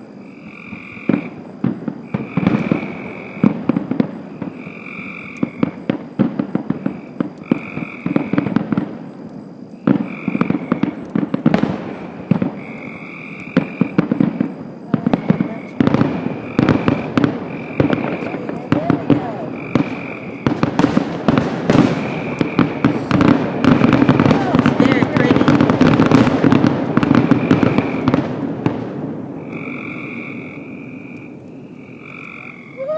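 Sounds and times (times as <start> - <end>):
fireworks crackling and popping: 0.0 - 32.9
frog trilling: 0.2 - 1.4, 4.5 - 5.8, 6.9 - 8.5, 10.0 - 11.1, 12.5 - 14.0, 15.0 - 20.6, 29.4 - 32.9.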